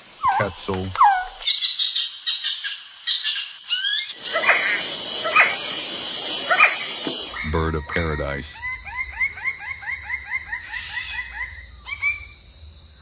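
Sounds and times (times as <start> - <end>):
birds chirping: 0.0 - 12.4
lower bird calls: 0.0 - 12.5
steady high hum: 4.2 - 13.0.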